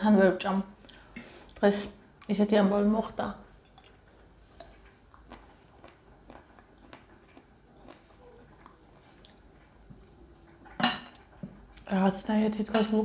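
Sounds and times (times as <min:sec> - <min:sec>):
wet chewing mouth clicks: 0:04.6 - 0:09.4.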